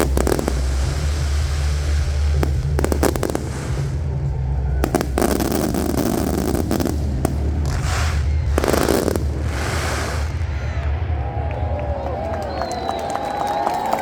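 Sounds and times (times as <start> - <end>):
fireworks cracking: 0.0 - 14.0
fireworks crackling: 0.0 - 14.0.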